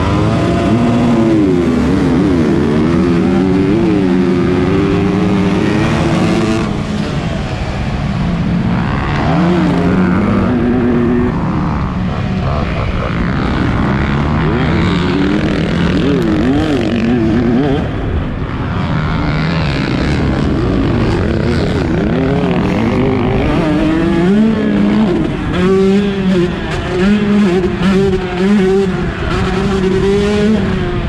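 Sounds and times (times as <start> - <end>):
two-stroke motorcycle engine racing: 0.0 - 31.0.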